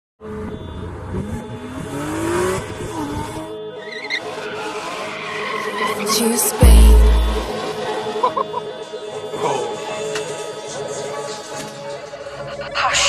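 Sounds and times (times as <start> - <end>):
car engine revving: 0.2 - 8.2
background music: 1.2 - 13.0.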